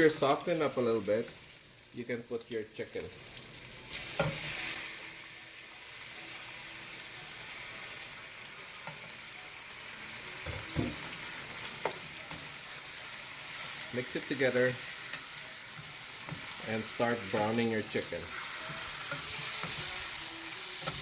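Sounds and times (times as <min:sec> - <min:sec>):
chicken sizzling in oil: 0:00.0 - 0:21.0.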